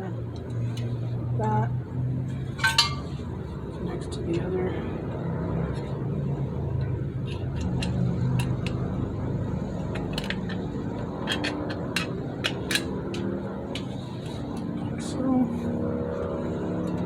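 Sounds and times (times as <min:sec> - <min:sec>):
steady low hum: 0:00.0 - 0:17.0
metallic clicks of brake parts: 0:07.2 - 0:09.0, 0:09.8 - 0:14.7.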